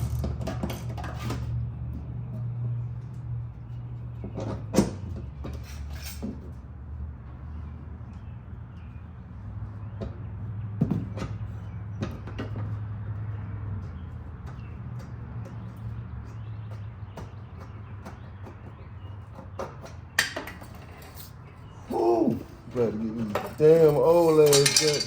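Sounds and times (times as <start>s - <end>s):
metal tools knocking and clanking: 0.0s - 1.6s, 19.6s - 21.4s, 22.7s - 25.0s.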